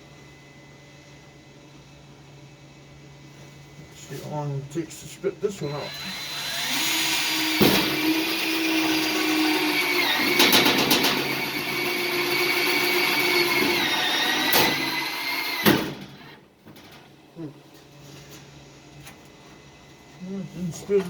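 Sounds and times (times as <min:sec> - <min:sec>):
power drill motor whining: 0:05.6 - 0:15.7.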